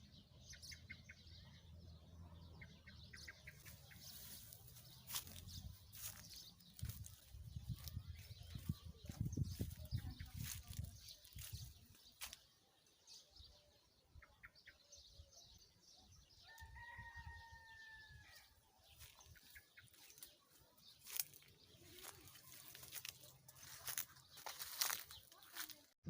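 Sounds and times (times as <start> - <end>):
faint rooster crow: 16.3 - 18.6.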